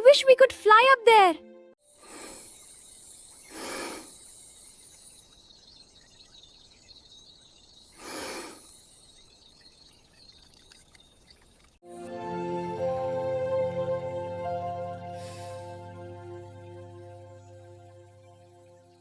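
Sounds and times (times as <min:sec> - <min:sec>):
insects chirring: 0:01.8 - 0:11.8.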